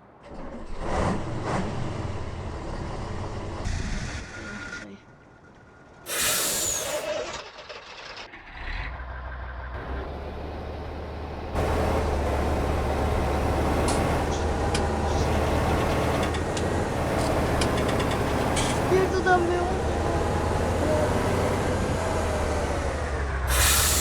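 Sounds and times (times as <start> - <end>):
air brakes hissing: 6.1 - 7.2, 23.3 - 24.0
truck engine running: 9.0 - 24.0.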